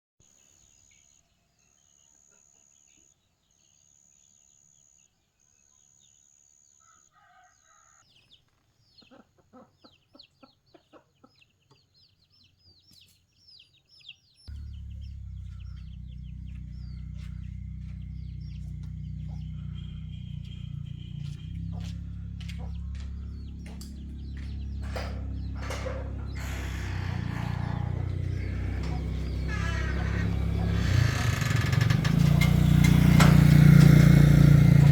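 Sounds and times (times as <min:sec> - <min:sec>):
bird chirps: 0:08.1 - 0:34.9
chickens clucking: 0:09.0 - 0:12.0, 0:14.7 - 0:34.9
loud steady low hum: 0:14.5 - 0:31.4
pulsing insect buzz: 0:14.5 - 0:31.8.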